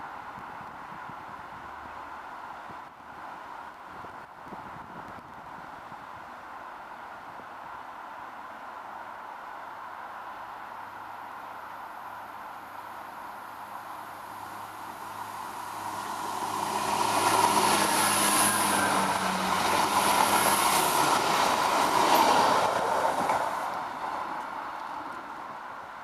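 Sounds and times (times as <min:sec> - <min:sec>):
wheels rushing on rails: 0:00.1 - 0:26.0
diesel train passing: 0:09.7 - 0:26.0.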